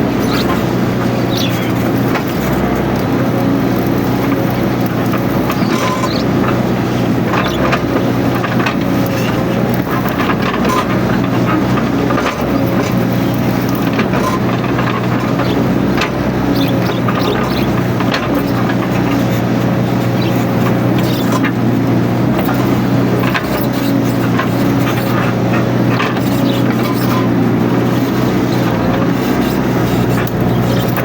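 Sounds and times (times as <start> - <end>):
excavator diesel engine running: 0.0 - 31.0
machine knocks and clatter: 3.8 - 31.0.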